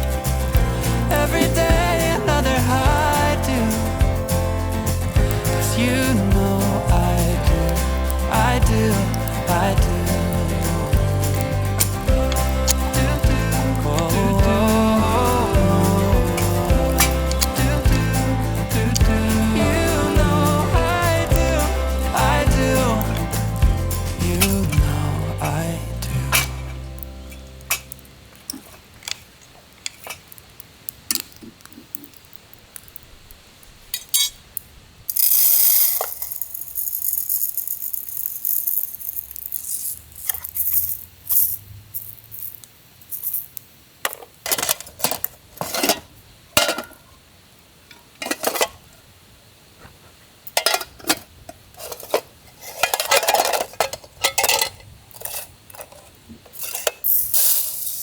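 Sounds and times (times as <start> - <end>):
metal tin and lid clinking: 26.3 - 29.2, 35.1 - 43.5, 44.1 - 47.0, 48.2 - 48.8, 50.5 - 58.0
short hiss: 35.1 - 43.6, 57.0 - 58.0.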